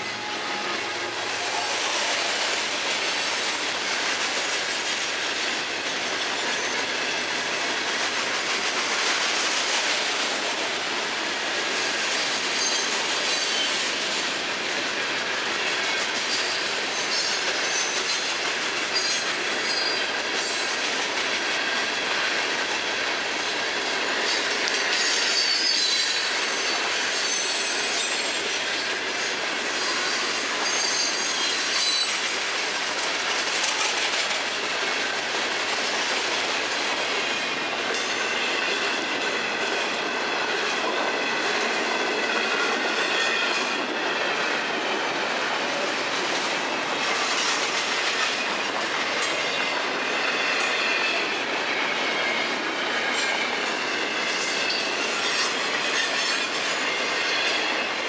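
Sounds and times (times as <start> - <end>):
train wheels clickety-clack on rail: 0.0 - 58.0
high-pitched wheel squeal: 29.8 - 32.1.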